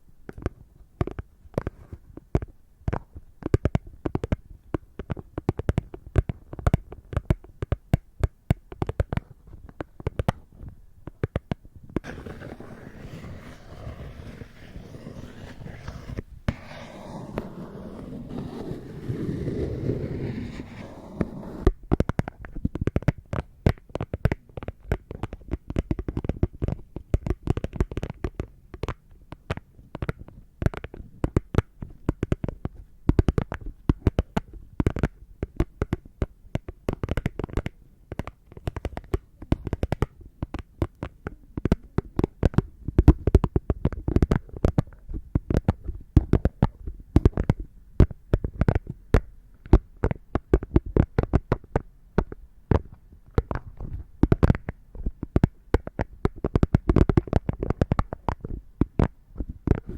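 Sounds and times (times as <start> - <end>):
soft rubbing and handling: 12.0 - 21.8.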